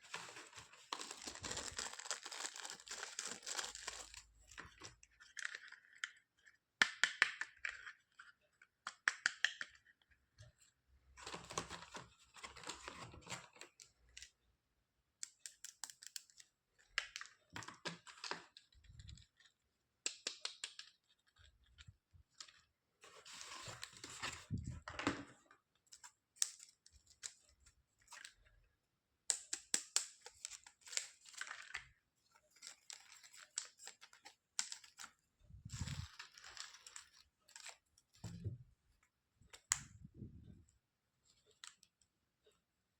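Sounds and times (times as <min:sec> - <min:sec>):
plastic and paper crinkling: 0:00.0 - 0:06.5, 0:30.1 - 0:38.6.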